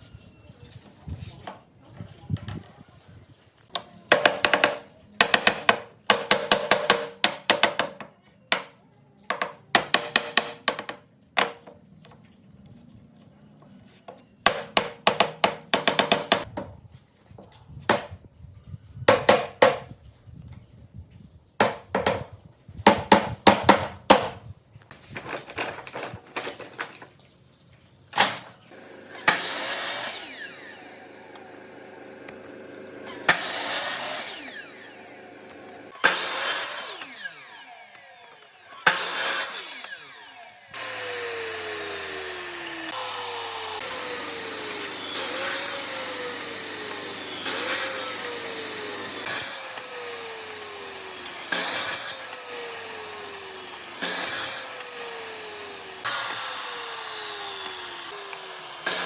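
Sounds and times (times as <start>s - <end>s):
power tool whining on wood: 28.7s - 59.0s.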